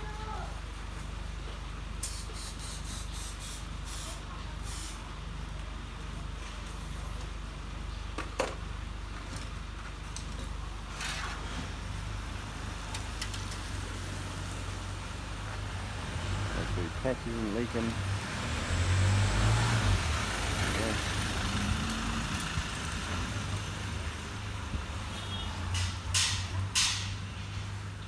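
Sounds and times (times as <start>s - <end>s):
compressed air hissing: 2.0s - 5.0s.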